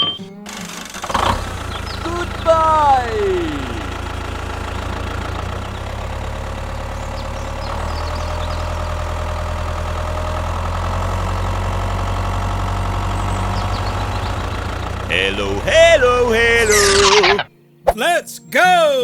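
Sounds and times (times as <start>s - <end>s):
small engine running: 0.4s - 17.2s.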